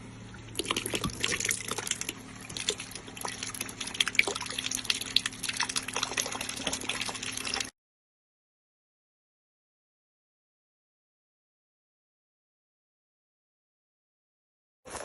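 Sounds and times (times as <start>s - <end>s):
low steady pump hum: 0.0s - 7.7s
water splashing from hose: 0.5s - 7.7s.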